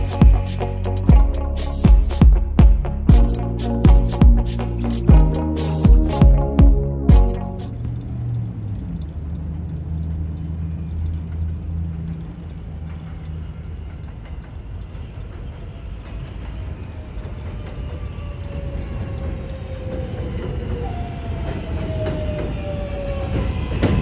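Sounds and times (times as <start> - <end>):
subway train rumbling: 7.6 - 24.0.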